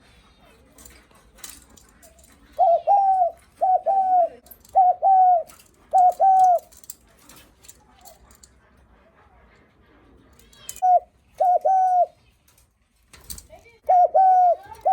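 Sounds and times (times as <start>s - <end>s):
dove cooing: 0.7s - 6.8s, 10.6s - 12.3s, 13.8s - 14.9s.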